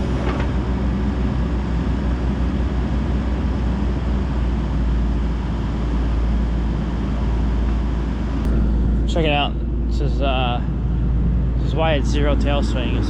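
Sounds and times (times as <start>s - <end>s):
diesel engine rumbling: 0.0s - 13.0s.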